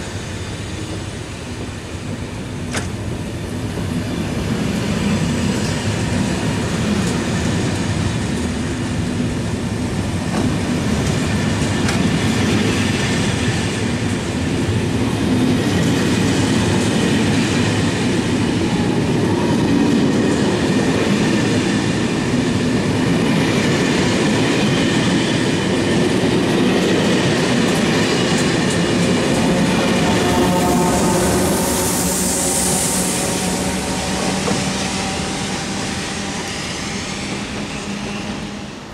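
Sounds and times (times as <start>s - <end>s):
electric locomotive hiss and whine: 0.0s - 38.9s
train wheels clattering over rails: 2.0s - 18.6s, 19.5s - 30.9s, 31.6s - 38.6s.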